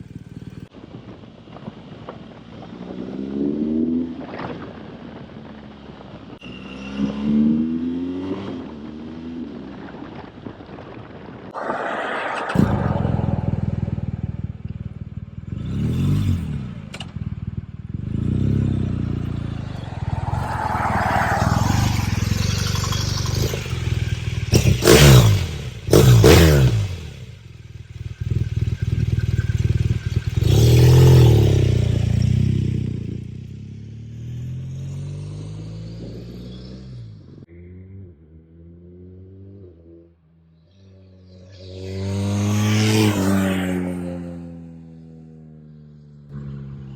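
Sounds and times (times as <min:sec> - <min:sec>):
motorcycle engine revving: 0:12.2 - 0:46.9.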